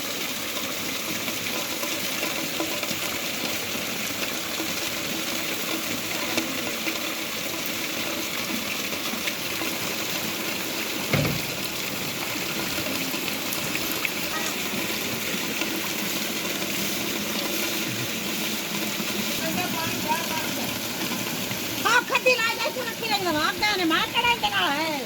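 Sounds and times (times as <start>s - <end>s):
heavy rain: 0.0s - 25.0s
running and splashing water: 0.0s - 25.0s
low thump: 11.1s - 11.6s.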